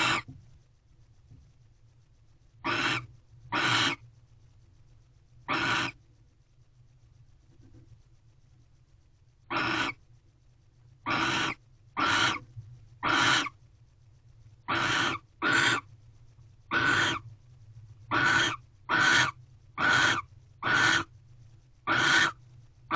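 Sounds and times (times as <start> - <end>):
owl hissing calls: 0.0 - 0.3, 2.6 - 4.0, 5.5 - 6.0, 9.5 - 10.0, 11.0 - 13.6, 14.7 - 15.9, 16.7 - 17.3, 18.1 - 21.1, 21.8 - 22.4.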